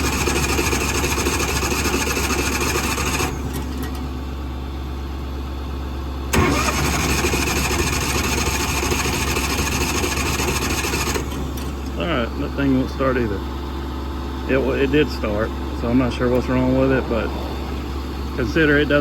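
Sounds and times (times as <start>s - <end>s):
engine cranking on starter: 0.0s - 4.1s, 6.3s - 12.0s
low engine hum: 9.8s - 19.0s.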